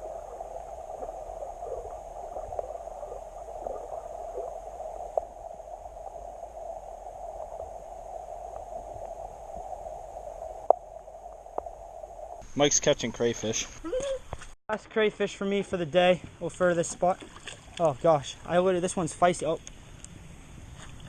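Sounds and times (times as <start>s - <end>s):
creek water gurgling: 0.0s - 11.7s.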